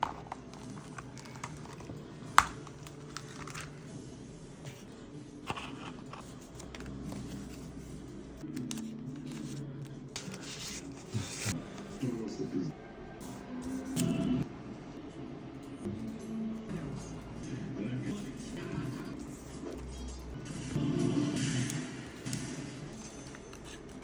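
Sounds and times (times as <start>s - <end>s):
paper rustling and crinkling: 0.0s - 3.9s.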